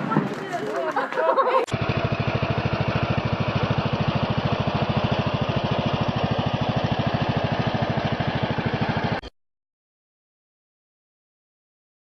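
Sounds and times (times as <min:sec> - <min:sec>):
small engine idling: 0:01.7 - 0:09.3.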